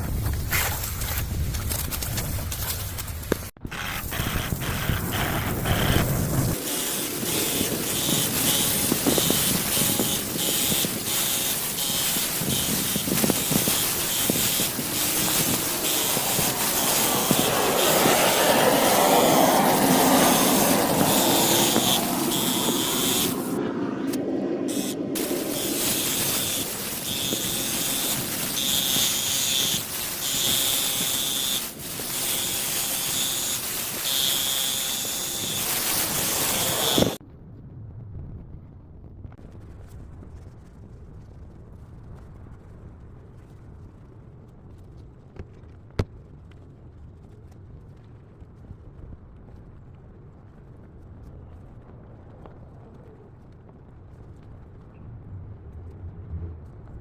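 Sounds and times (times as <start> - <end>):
water spraying onto car: 7.3 - 23.5.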